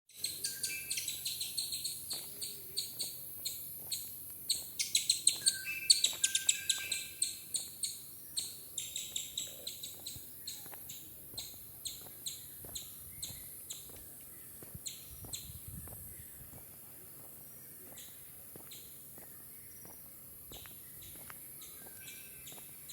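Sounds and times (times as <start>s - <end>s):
bird chirping: 0.1s - 16.6s, 17.6s - 22.9s
lower whistled bird notes: 0.2s - 3.2s, 4.5s - 10.7s.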